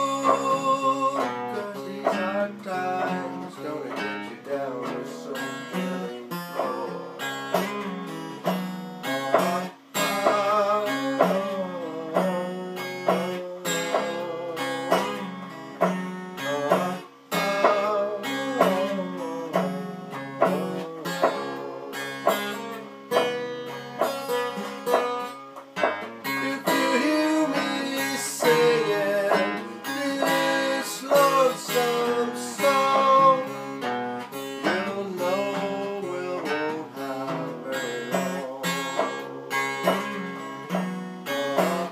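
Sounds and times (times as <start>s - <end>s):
fingerpicked blues guitar: 0.0s - 41.9s.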